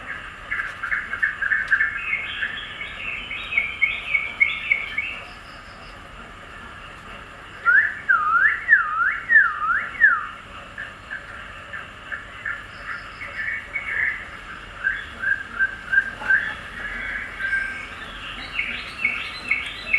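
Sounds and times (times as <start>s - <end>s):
songbirds chirping: 0.0s - 19.9s
bird whistled notes: 7.6s - 10.4s, 14.8s - 19.9s.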